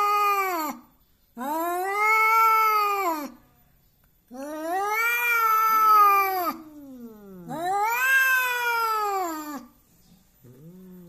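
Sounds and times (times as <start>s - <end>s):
cat yowling: 1.4s - 3.4s, 4.3s - 9.7s.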